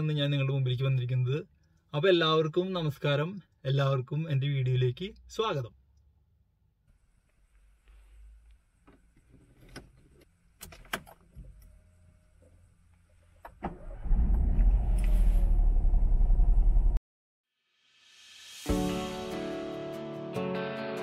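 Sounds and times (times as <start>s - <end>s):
car engine starting and running: 8.8s - 17.0s.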